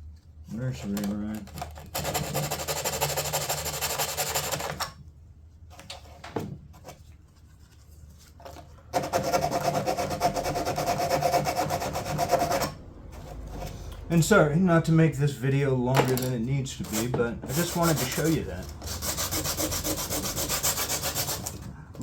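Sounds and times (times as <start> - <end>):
sanding fiberglass edge: 9.0 - 12.8, 16.9 - 21.6.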